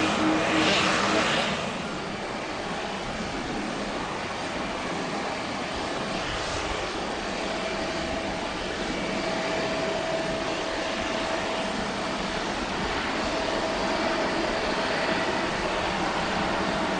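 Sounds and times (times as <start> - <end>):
jet engine rush: 0.0 - 16.9
thin jet engine whine: 0.0 - 16.9.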